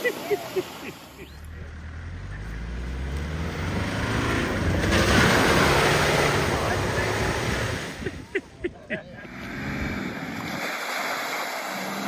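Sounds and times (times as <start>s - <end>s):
vehicle engine running under load: 1.2s - 8.4s.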